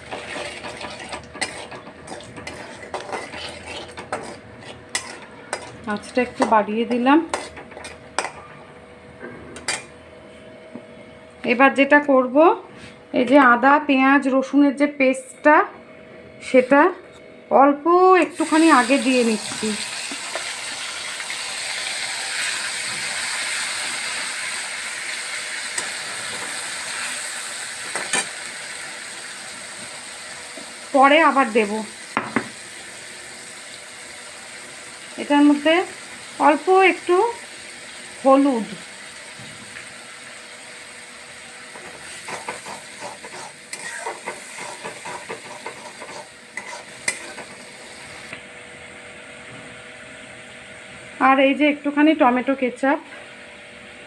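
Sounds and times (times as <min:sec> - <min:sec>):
paste sizzling in hot oil: 0:00.0 - 0:08.3, 0:18.3 - 0:48.3
spatula scraping a pan: 0:00.0 - 0:08.4, 0:41.8 - 0:47.7
knock on a pan: 0:32.2 - 0:32.6.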